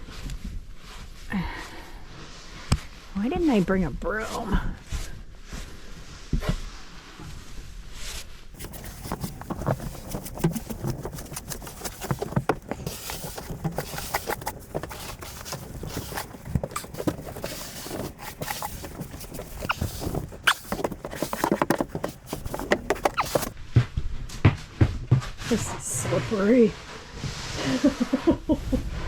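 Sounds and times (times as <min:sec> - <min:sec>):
footsteps: 0:08.6 - 0:25.3.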